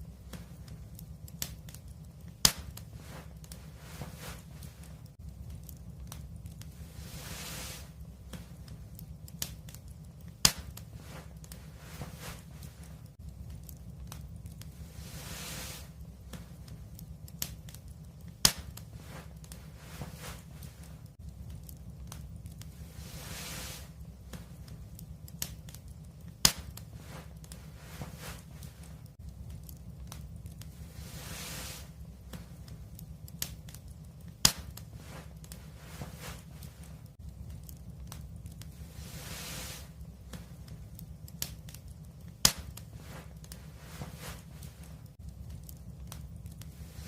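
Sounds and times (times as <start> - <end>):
low steady rumble: 0.0 - 47.0
wood fire crackling: 0.0 - 47.0
sharp pops: 0.3 - 5.0, 7.7 - 13.0, 15.5 - 20.9, 23.5 - 30.7, 31.7 - 37.0, 39.6 - 45.0.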